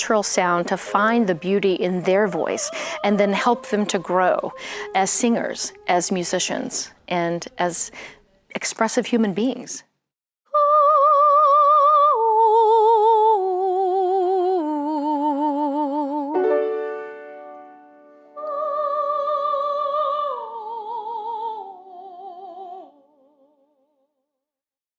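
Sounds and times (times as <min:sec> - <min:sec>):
high voice singing with vibrato: 0:00.4 - 0:08.1, 0:10.5 - 0:16.4, 0:18.4 - 0:23.0
piano chord: 0:16.3 - 0:18.4.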